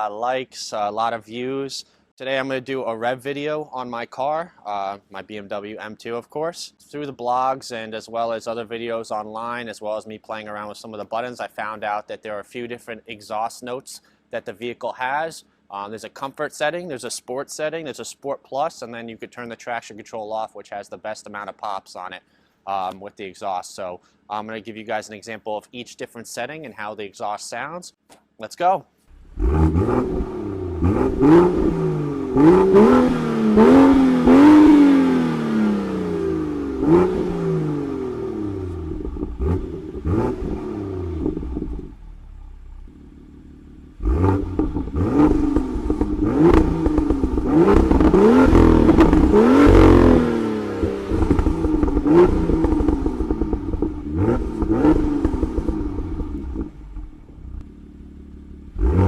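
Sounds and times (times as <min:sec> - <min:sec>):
car engine revving: 0:29.1 - 0:59.0
exhaust pops: 0:29.1 - 0:59.0.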